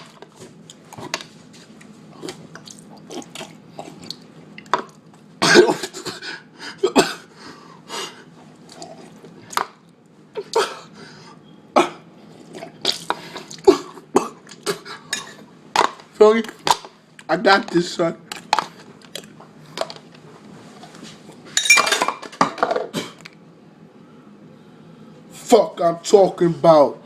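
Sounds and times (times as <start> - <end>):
slurping and mouth sounds: 16.4 - 16.8, 18.3 - 19.4.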